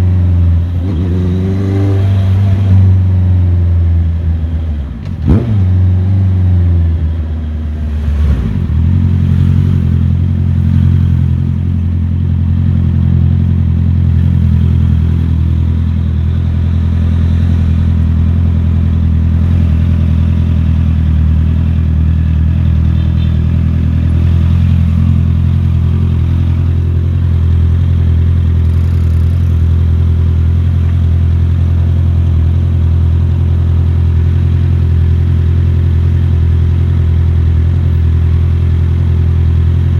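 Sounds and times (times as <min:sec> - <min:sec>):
motorcycle engine running: 0:08.5 - 0:39.9.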